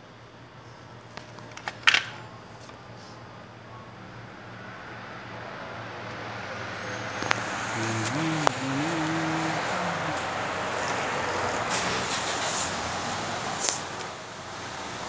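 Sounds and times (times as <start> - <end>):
car engine running: 7.3 - 15.0
short wavering voice: 7.8 - 10.5.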